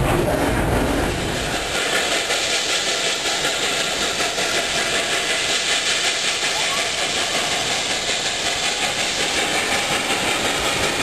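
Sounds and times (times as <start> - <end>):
train wheels rolling on rails: 0.0 - 11.0.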